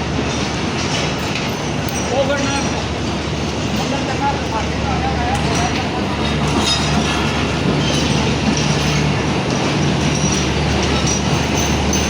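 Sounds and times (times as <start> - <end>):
wheel and rail noise: 0.0 - 12.0
wheels squealing: 0.3 - 12.0.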